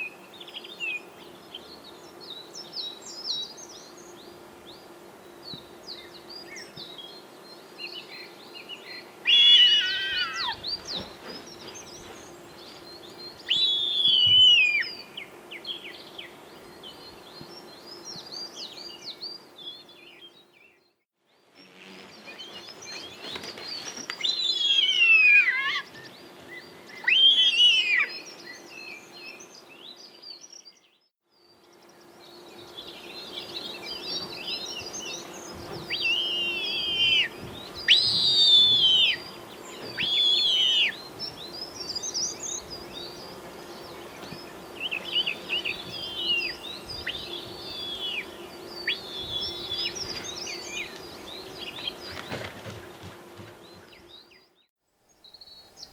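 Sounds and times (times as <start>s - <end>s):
birds whistling: 9.3s - 12.1s, 13.4s - 15.0s, 21.9s - 28.6s, 35.8s - 41.0s, 44.8s - 51.0s.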